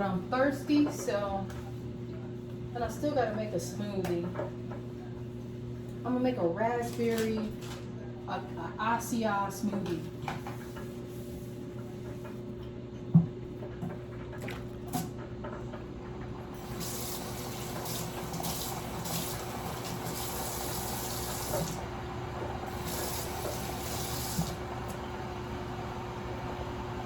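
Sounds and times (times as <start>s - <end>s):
faucet running into sink: 16.6s - 21.9s, 22.6s - 25.0s.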